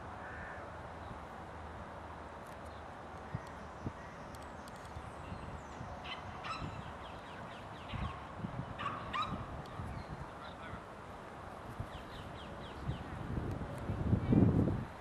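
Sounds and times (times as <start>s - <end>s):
bird calls: 2.6s - 10.8s.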